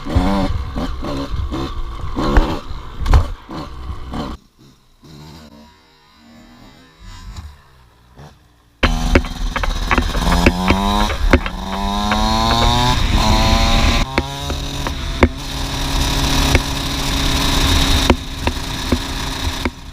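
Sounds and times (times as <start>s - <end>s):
sharp knocks: 8.8s - 15.5s, 16.4s - 16.8s, 17.7s - 19.9s
dirt bike engine accelerating: 8.8s - 19.9s.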